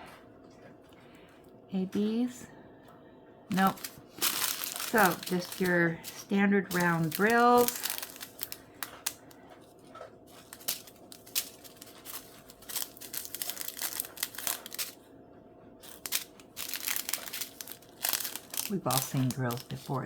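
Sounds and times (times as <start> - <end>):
plastic bags crinkling: 3.5 - 9.4, 10.3 - 15.0, 15.8 - 20.0.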